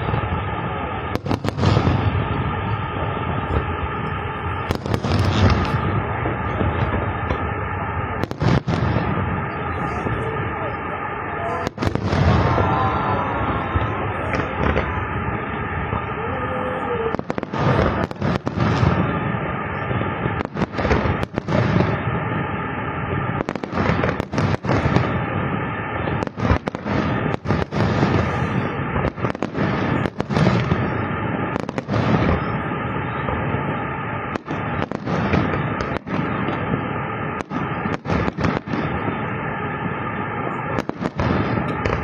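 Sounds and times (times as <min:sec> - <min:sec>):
fireworks bursting: 0:00.0 - 0:42.0
sharp firework bangs: 0:00.0 - 0:42.0.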